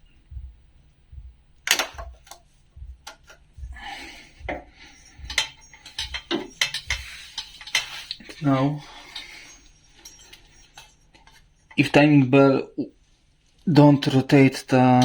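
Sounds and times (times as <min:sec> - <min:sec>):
sharp metallic knocks: 0:01.2 - 0:07.9
metal tools clinking: 0:04.9 - 0:12.1, 0:13.6 - 0:15.0.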